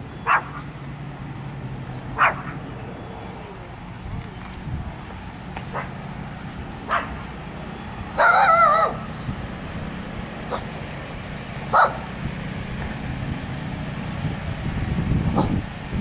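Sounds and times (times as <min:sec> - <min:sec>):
generators humming: 0:00.0 - 0:16.0
dog barking: 0:00.2 - 0:00.7, 0:02.2 - 0:02.6, 0:05.7 - 0:06.0, 0:06.9 - 0:07.2, 0:08.2 - 0:09.0, 0:10.5 - 0:10.7, 0:11.7 - 0:12.1
dog whining: 0:08.2 - 0:09.0.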